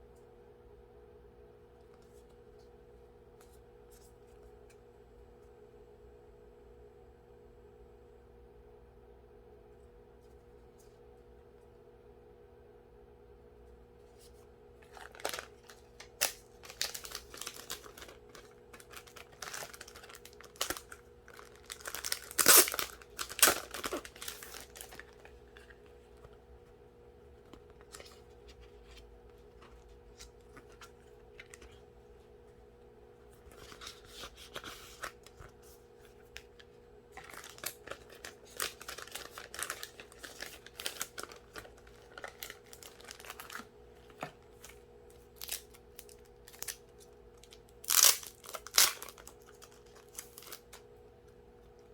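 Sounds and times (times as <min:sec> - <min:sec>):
faint steady hum: 0:00.0 - 0:51.9
packaging torn and crinkled: 0:14.8 - 0:25.8, 0:37.2 - 0:50.8.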